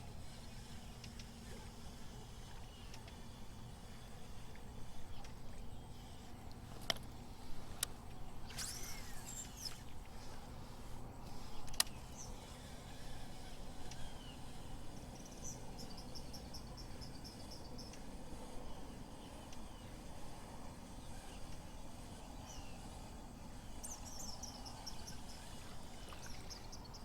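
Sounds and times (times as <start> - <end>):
steady low hum: 0.0 - 27.0
sharp clicks: 11.2 - 12.3.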